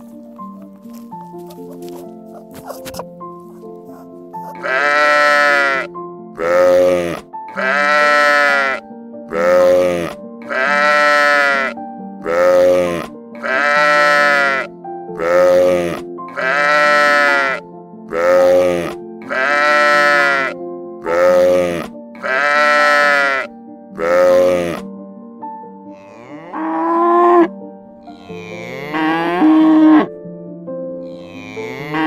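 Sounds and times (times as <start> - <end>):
background music: 0.0 - 32.0
animal bleating: 4.5 - 24.8, 25.9 - 30.1, 31.0 - 32.0.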